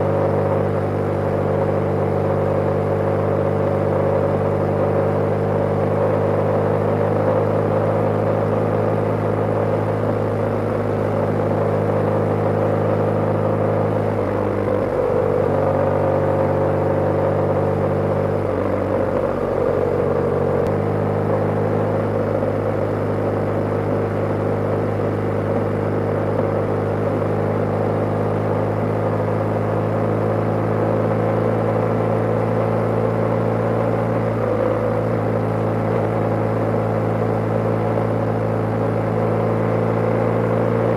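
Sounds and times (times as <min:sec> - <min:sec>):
motorcycle engine running: 0:00.0 - 0:40.9
road and wind noise: 0:00.0 - 0:40.9.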